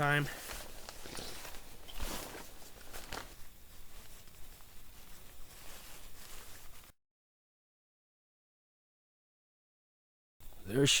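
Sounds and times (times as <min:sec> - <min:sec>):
rustling and handling noise: 0:00.0 - 0:06.9.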